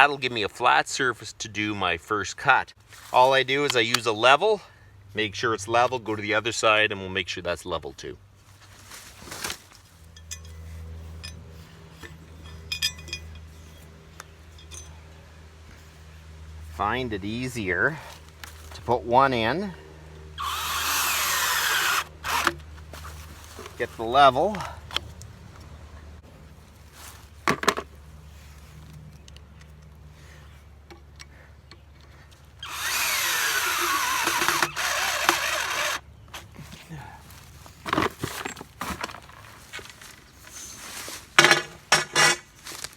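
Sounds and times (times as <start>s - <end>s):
steady low hum: 8.0s - 37.8s
metal plates clinking: 10.1s - 13.8s
metal clank: 12.0s - 13.8s
power drill driving screw: 20.4s - 22.6s, 32.6s - 36.0s.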